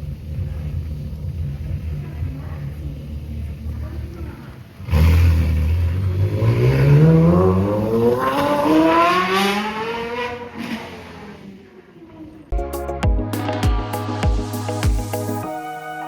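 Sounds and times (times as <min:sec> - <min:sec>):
sports car engine accelerating: 0:04.7 - 0:11.8.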